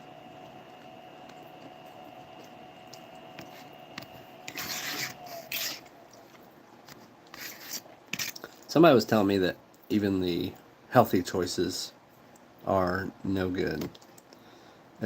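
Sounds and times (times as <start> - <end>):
faint steady hum: 0.0 - 15.0
rustling scraping handling noises: 3.4 - 8.4.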